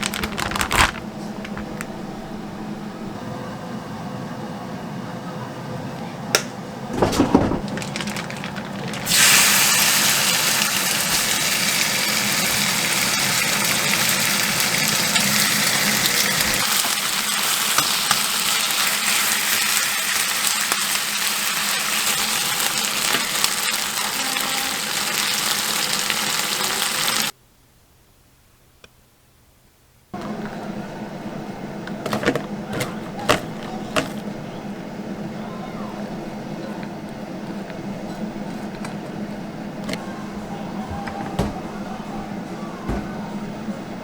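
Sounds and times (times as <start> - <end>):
knocks and clatters: 6.9 - 9.1, 31.9 - 34.2
food sizzling in hot oil: 9.0 - 27.3.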